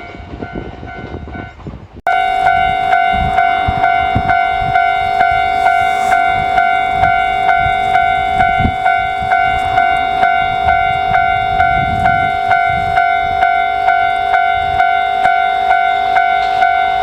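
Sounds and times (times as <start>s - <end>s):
level crossing warning bell: 2.1s - 17.0s.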